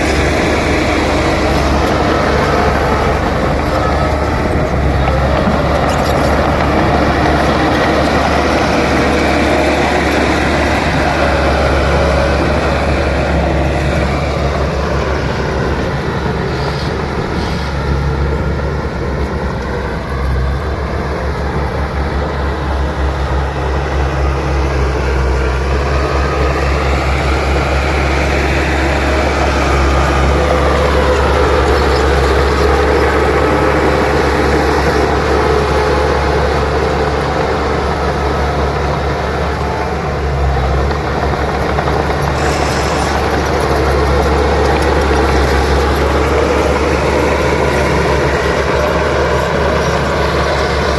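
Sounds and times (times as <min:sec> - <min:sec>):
bulldozer diesel engine: 0:00.0 - 0:50.9
steel tracks clattering: 0:25.1 - 0:50.9.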